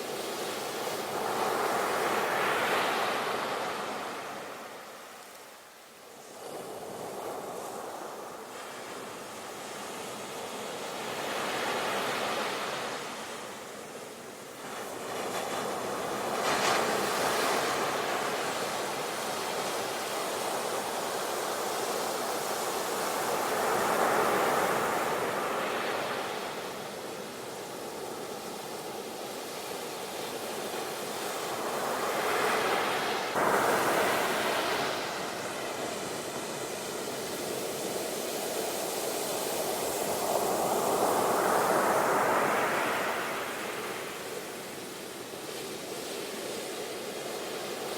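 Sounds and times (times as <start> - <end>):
sea waves breaking on shore: 14.7 - 47.9.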